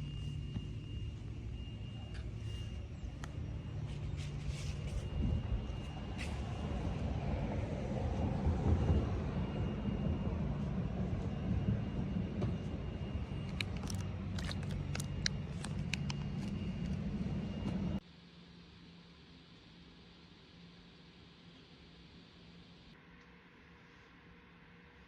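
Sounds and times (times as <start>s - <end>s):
low hum: 0.0s - 18.0s
low mechanical rumble: 0.0s - 18.0s
faint high whine: 0.0s - 25.0s.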